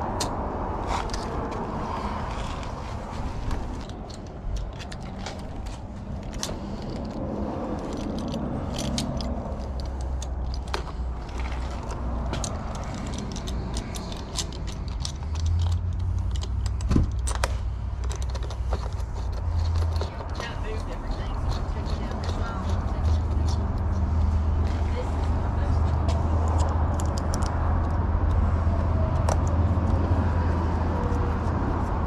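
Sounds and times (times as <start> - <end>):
small metal clicks and rattles: 3.7 - 23.9, 26.4 - 28.4.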